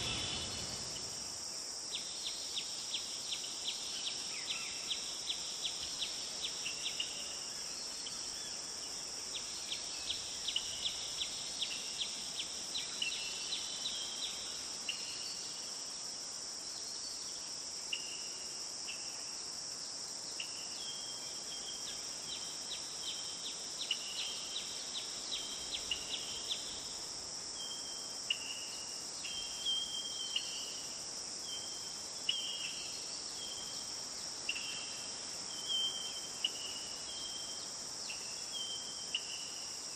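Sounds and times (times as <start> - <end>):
high-pitched insect drone: 0.0 - 1.5.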